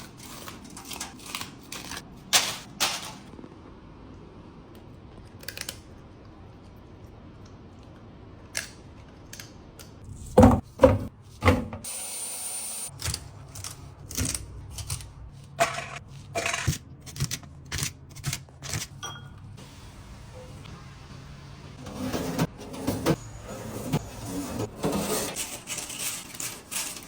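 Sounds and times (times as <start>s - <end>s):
kitchen knocks: 10.4s - 11.9s.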